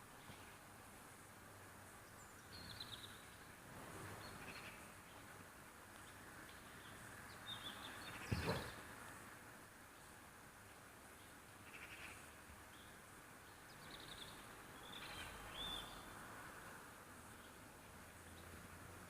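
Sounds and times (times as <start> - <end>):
faint outdoor background noise: 0.0 - 19.0
thump: 8.3 - 8.7.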